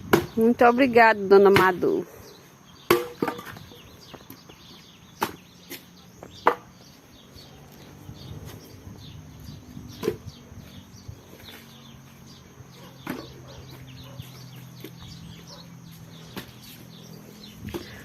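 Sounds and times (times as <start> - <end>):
firewood knocking: 2.9 - 3.6, 6.4 - 6.7.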